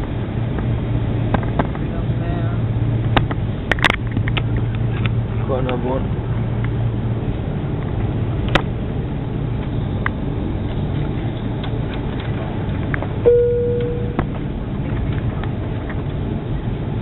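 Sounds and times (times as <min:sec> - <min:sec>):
airliner engines rumbling: 0:00.0 - 0:17.0
cabin chime tone: 0:13.3 - 0:14.2.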